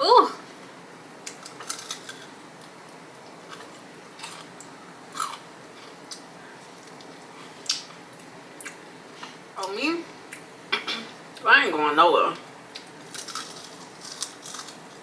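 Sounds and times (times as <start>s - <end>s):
crunchy chewing: 1.2s - 9.3s, 12.7s - 15.0s.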